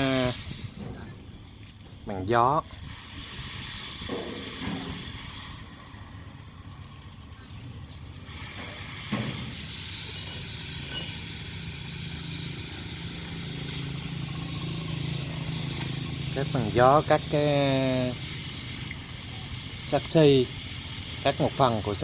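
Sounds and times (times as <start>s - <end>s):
cutting torch hissing: 0.0s - 22.0s.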